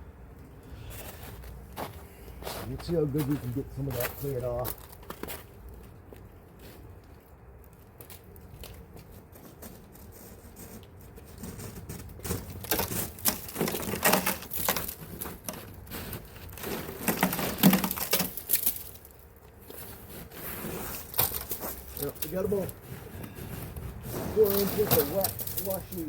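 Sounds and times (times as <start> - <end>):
scraping slushy snow: 15.9 - 18.0, 19.7 - 26.0.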